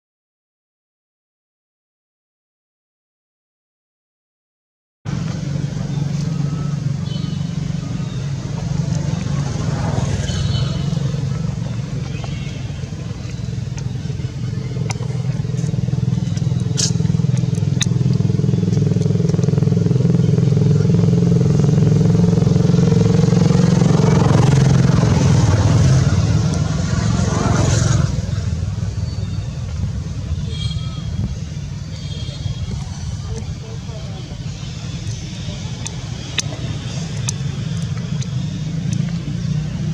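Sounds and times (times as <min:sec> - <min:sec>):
vehicle engine running: 0:05.1 - 0:39.9
faint high chirps: 0:05.8 - 0:09.4.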